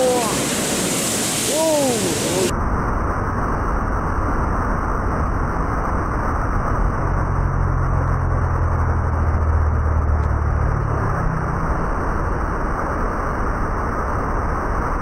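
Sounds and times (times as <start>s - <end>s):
water rushing through sluice gates: 0.0s - 2.5s
boat engine droning: 6.6s - 14.0s.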